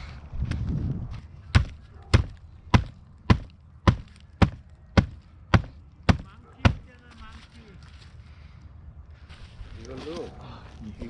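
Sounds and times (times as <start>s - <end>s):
firewood being chopped: 1.5s - 7.4s.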